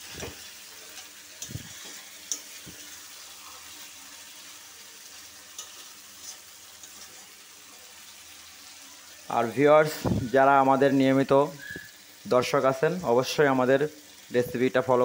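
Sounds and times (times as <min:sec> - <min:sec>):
food sizzling in oil: 0:00.0 - 0:15.0
spatula clicking against pan: 0:02.2 - 0:02.5, 0:05.5 - 0:05.8.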